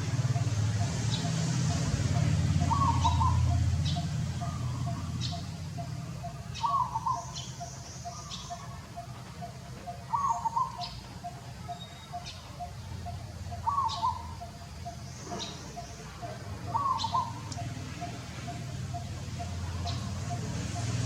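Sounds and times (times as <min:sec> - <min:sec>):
soft ticking bird notes: 0:00.0 - 0:21.0
high bird chirps: 0:02.1 - 0:21.0.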